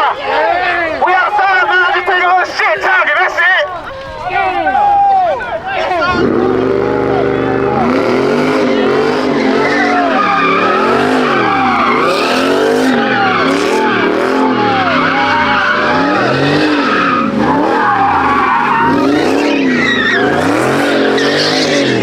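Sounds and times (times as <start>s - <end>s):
tire squeal: 3.6s - 22.0s
car engine revving: 5.7s - 22.0s.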